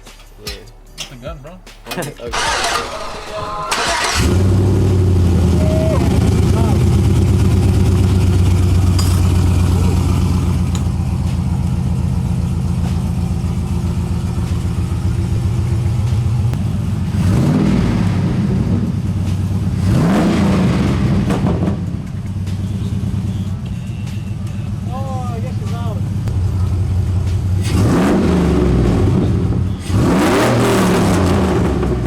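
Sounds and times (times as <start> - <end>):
pickup engine idling and revving: 2.3 - 32.0.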